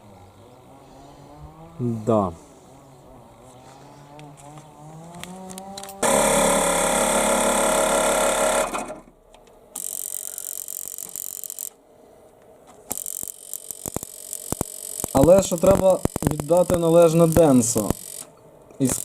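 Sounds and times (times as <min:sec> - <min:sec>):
high buzzing: 0:04.4 - 0:11.8, 0:12.8 - 0:19.0
loud mechanical run: 0:06.0 - 0:09.0.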